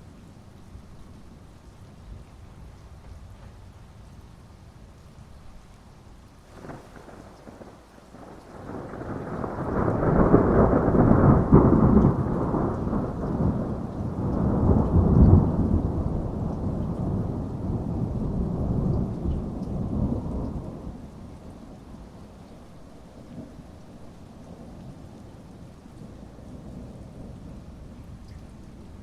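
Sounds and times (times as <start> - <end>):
heavy rain: 0.0 - 29.0
rolling thunder: 6.5 - 22.0.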